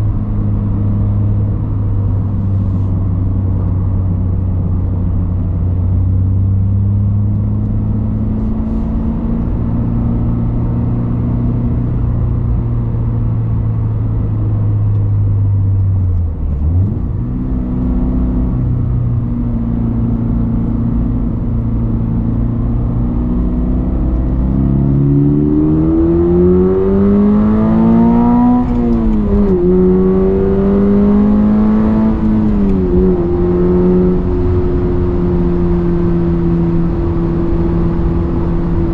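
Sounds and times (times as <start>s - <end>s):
car accelerating with gear upshifts: 0.0s - 38.9s.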